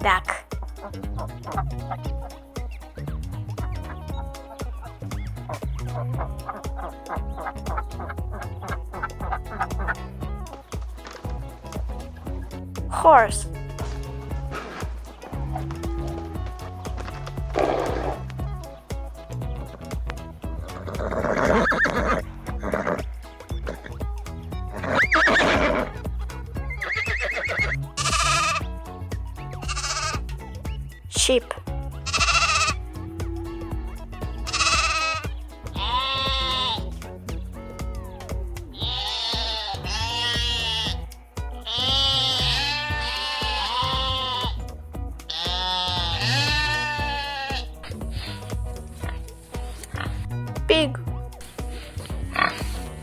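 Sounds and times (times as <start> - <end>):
background music: 0.0 - 53.0
horse neighing: 26.7 - 28.8, 29.4 - 30.2, 32.0 - 36.9, 38.8 - 44.6, 45.3 - 48.4
sheep bleating: 26.7 - 28.8, 29.6 - 30.2, 32.0 - 36.9, 38.8 - 44.7, 45.3 - 48.4.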